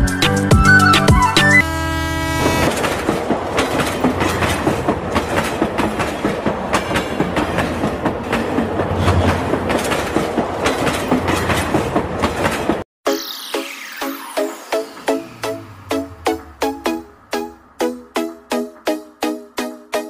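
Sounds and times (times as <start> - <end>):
train horn blast: 1.6 - 2.8
train wheels clickety-clack: 2.7 - 12.8.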